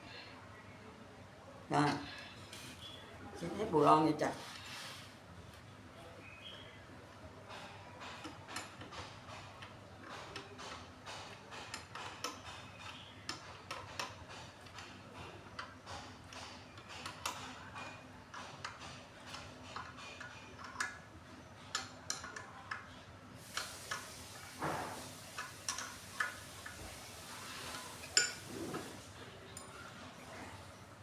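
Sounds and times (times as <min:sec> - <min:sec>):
wrench clicking on metal bolts: 0:08.1 - 0:15.0, 0:15.6 - 0:21.0, 0:21.7 - 0:22.9
faint hiss: 0:23.4 - 0:29.3.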